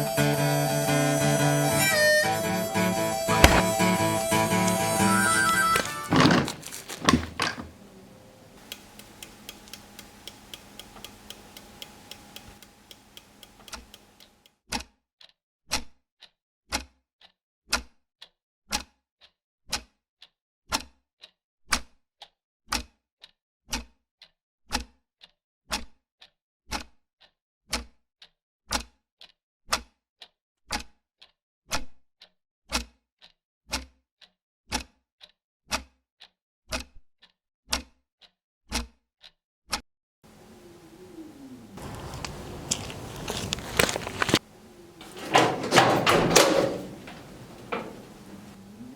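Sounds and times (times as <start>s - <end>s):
single knock: 3.4s - 3.9s
clock ticking: 8.6s - 14.3s
faint hum: 40.3s - 48.9s.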